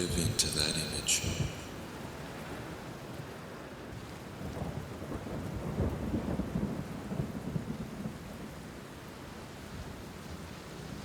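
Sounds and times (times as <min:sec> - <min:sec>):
steady rain: 0:00.0 - 0:11.0
rumble of thunder: 0:04.4 - 0:08.8.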